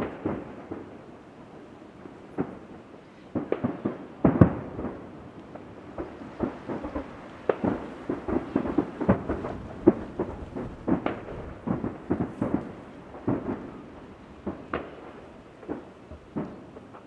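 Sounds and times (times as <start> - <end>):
distant fireworks booming: 0.0 - 17.0
rolling rumble: 5.4 - 17.0.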